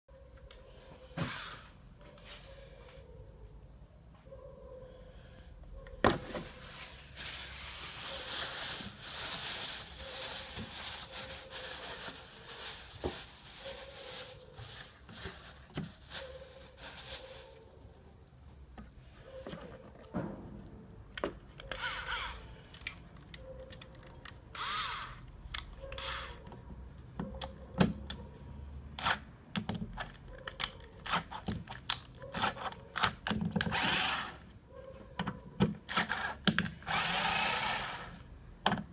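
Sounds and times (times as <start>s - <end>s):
power tool noise: 24.6s - 25.2s, 33.7s - 34.4s, 36.8s - 38.3s.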